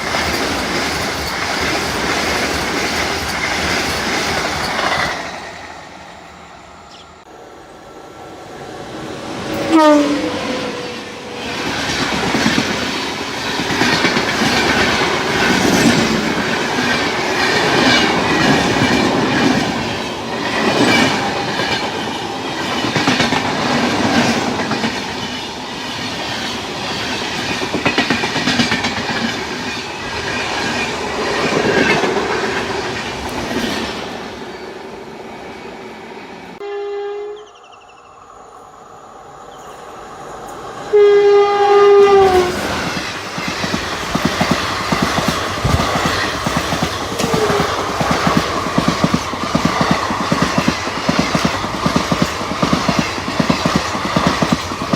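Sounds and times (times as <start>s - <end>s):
train wheels clattering: 11.6s - 34.2s, 42.6s - 54.9s.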